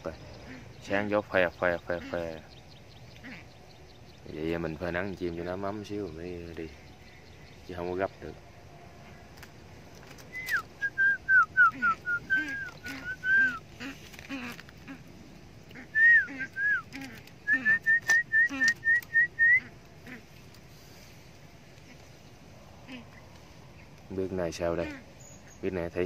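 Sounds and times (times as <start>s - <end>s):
bird whistling descending notes: 10.3s - 13.6s, 15.9s - 19.7s.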